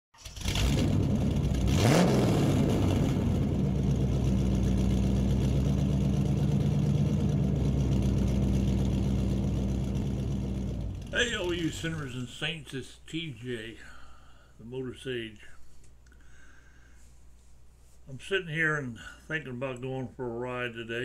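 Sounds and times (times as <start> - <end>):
vehicle engine revving: 0.2 - 12.2.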